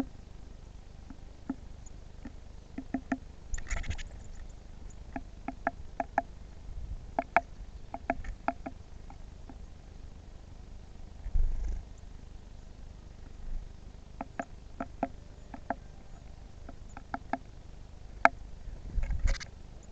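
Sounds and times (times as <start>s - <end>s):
bird pecking at a feeder: 1.0s - 6.4s, 7.1s - 9.7s, 14.2s - 18.4s
rustling wing flutter: 3.5s - 4.4s, 11.2s - 11.9s, 18.8s - 19.5s.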